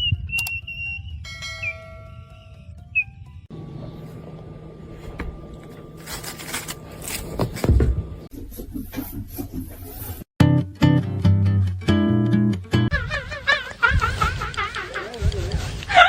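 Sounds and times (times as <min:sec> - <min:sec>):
scraping and rubbing: 0:04.9 - 0:10.3.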